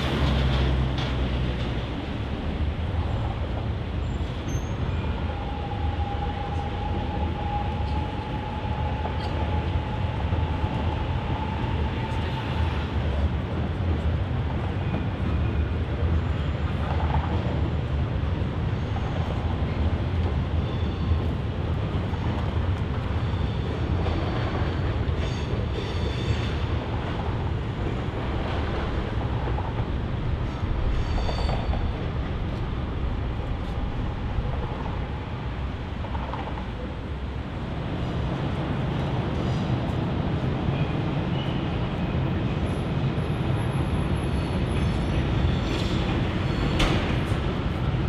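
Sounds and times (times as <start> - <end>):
train rumbling over viaduct: 0.0 - 48.0
train wheel squeals: 4.0 - 13.1, 20.5 - 21.4, 23.2 - 26.8, 30.4 - 32.2, 40.7 - 47.4.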